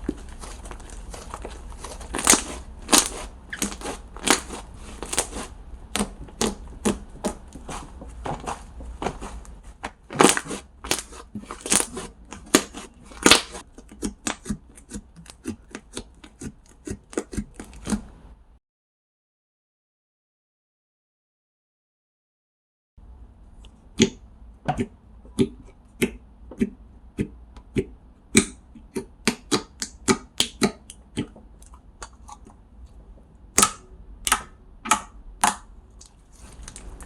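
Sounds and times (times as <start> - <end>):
slime squished by hand popping: 2.1 - 7.4, 10.1 - 13.6.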